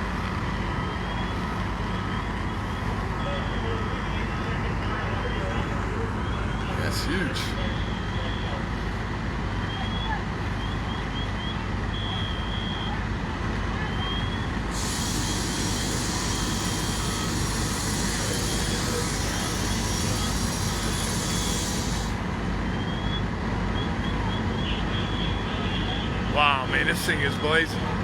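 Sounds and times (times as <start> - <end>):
truck engines rumbling: 14.3 - 22.7
loud air hiss: 14.7 - 22.3.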